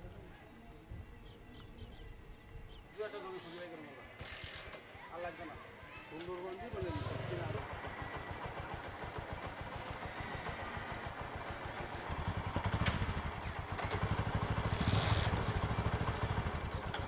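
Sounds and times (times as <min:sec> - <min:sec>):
small engine pulsing: 0:06.6 - 0:17.0.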